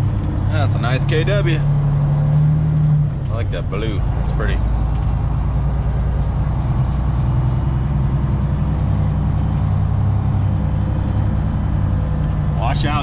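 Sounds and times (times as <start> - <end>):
truck engine low drone: 0.0 - 13.0.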